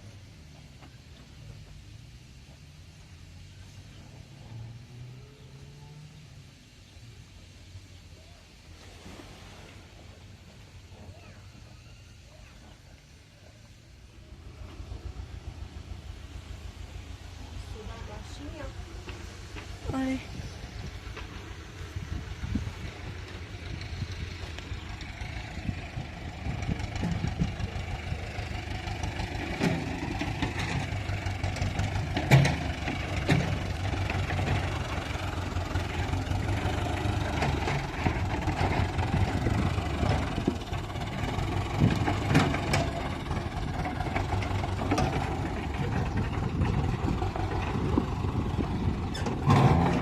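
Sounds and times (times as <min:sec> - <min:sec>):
digger engine running: 0:14.0 - 0:50.0
sharp knocks and clatters: 0:29.4 - 0:34.8.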